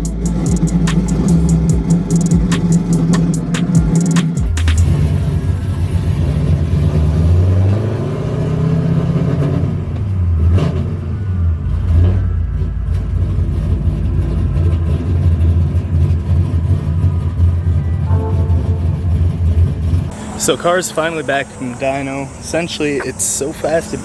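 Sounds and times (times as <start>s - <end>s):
car engine running: 0.0s - 6.8s.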